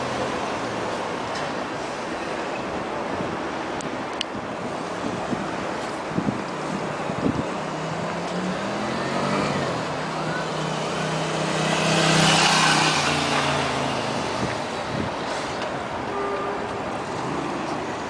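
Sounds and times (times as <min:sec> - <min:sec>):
vehicle passing by: 0:07.7 - 0:15.6.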